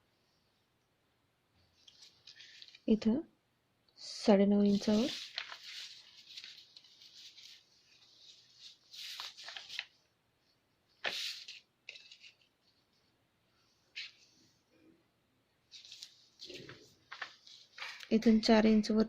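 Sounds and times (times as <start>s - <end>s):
paper rustling: 1.7s - 2.9s, 4.5s - 10.1s, 11.0s - 13.1s, 13.9s - 14.5s, 15.7s - 18.4s.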